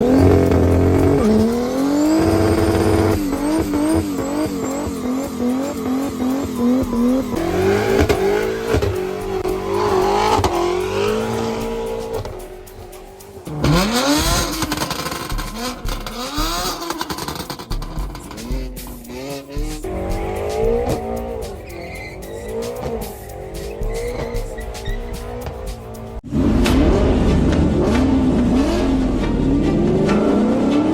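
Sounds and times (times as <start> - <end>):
car engines revving and accelerating: 0.0 - 30.9.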